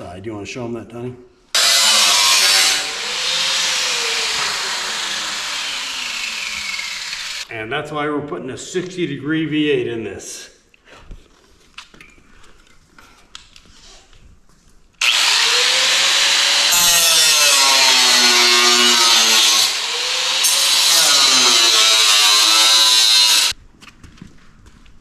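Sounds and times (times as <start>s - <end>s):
power tool cutting sheet steel: 1.6s - 7.5s, 15.0s - 23.5s.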